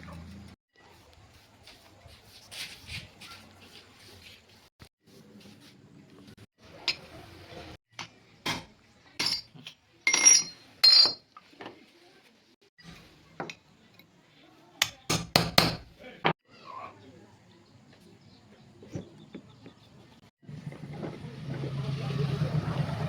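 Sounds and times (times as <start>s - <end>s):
metal tools clinking: 9.2s - 11.4s.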